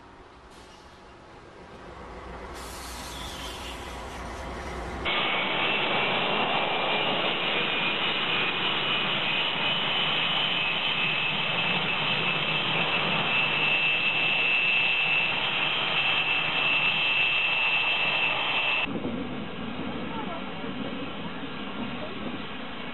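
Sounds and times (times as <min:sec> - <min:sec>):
snow blower roaring: 0:05.0 - 0:18.9
thin high whine: 0:05.0 - 0:18.9.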